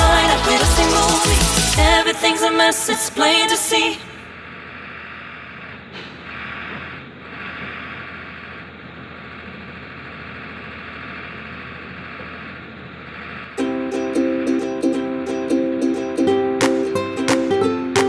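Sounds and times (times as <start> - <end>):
diesel engine running: 4.1 - 15.3.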